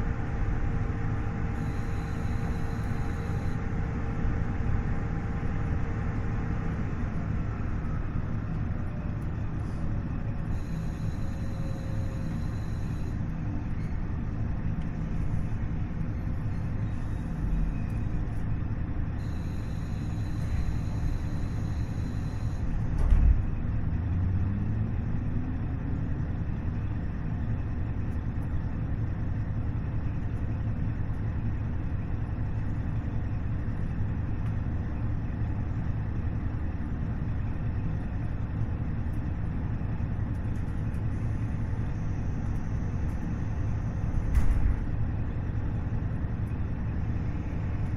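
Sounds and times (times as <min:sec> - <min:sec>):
diesel railcar rumbling: 0:00.0 - 0:47.9
thump: 0:44.3 - 0:44.8.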